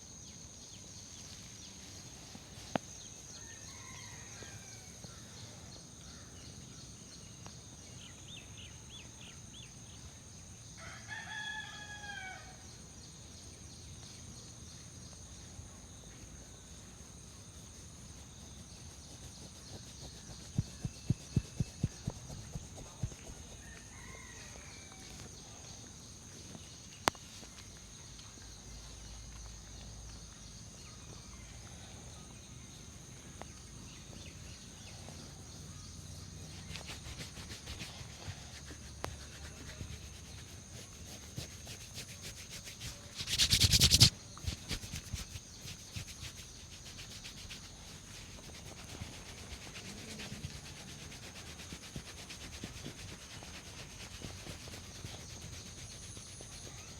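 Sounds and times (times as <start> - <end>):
fingers scrubbing hair: 18.5 - 23.6, 36.6 - 56.9.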